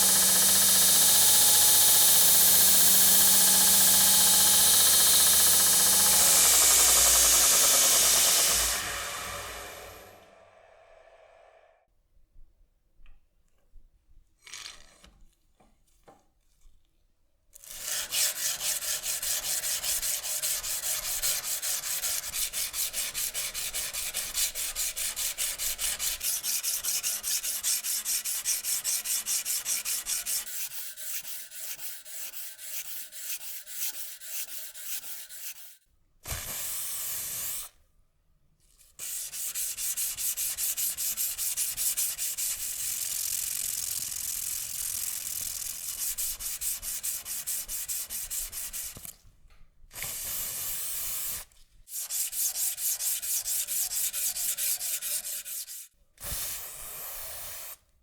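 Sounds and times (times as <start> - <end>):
hand sanding strokes: 17.8 - 35.8, 39.0 - 49.1, 50.2 - 57.8.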